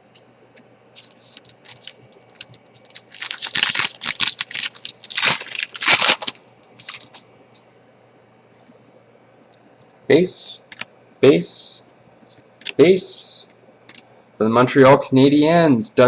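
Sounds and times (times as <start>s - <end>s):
foil wrapper crinkling and tearing: 1.0s - 7.2s.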